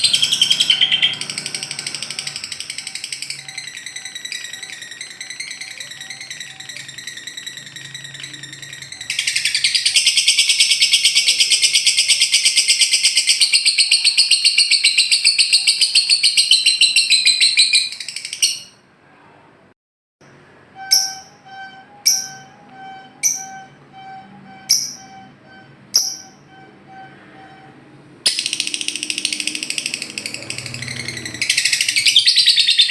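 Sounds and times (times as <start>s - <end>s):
bird rattling trill: 0.0s - 18.6s, 28.3s - 32.9s
bird chirping: 0.0s - 18.8s, 20.8s - 32.9s
sharp bird chirps: 0.0s - 18.8s, 20.8s - 27.1s, 28.3s - 32.9s.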